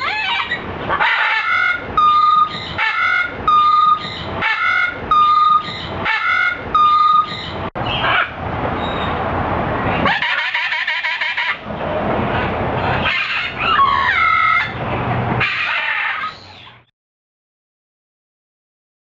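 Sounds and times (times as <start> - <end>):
bird squawking and whistling: 0.0 - 9.1, 13.0 - 14.8, 15.4 - 16.8.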